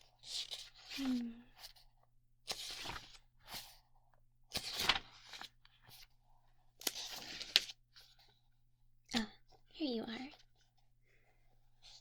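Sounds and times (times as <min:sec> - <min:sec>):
paper rustling: 0:02.5 - 0:03.8, 0:04.5 - 0:06.1, 0:06.8 - 0:08.3.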